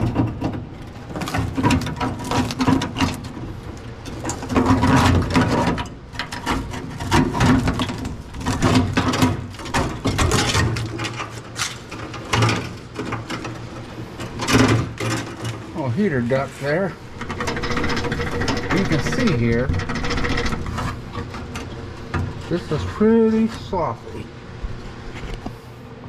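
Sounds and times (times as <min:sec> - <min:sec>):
hand tools clicking and rattling: 0:17.1 - 0:23.6.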